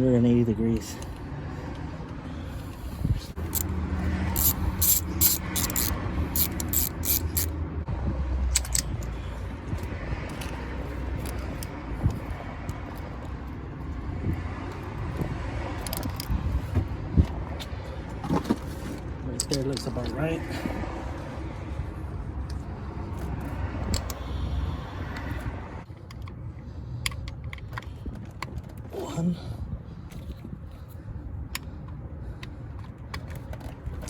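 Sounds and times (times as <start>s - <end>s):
vehicle engine rumbling: 0.1s - 34.0s
metallic clicks and knocks: 8.5s - 10.6s.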